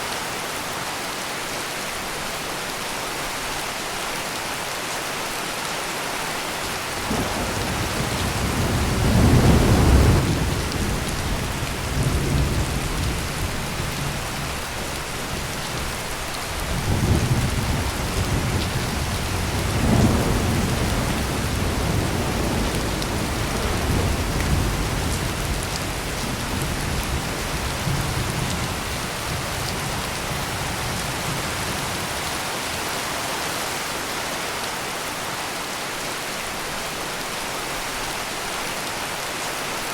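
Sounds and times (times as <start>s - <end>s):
heavy rain pouring: 0.0s - 39.9s
rolling thunder: 7.0s - 14.5s, 16.6s - 32.1s.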